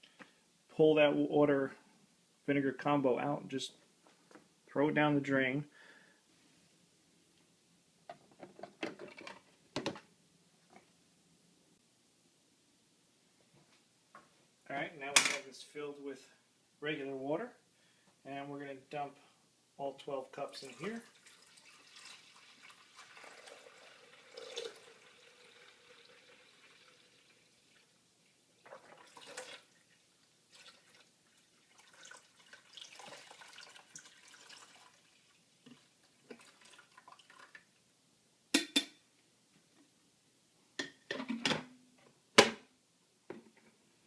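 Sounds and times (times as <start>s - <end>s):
water trickling into reservoir: 20.4s - 37.8s.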